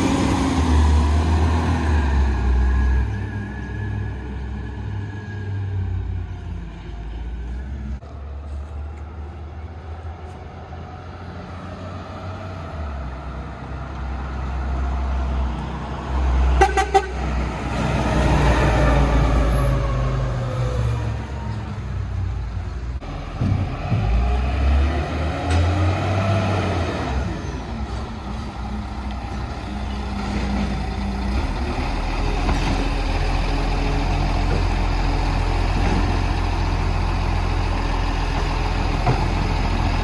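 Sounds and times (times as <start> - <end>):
horn toots: 16.6 - 17.3
engine revving: 23.0 - 28.1
diesel engine running: 27.2 - 40.0.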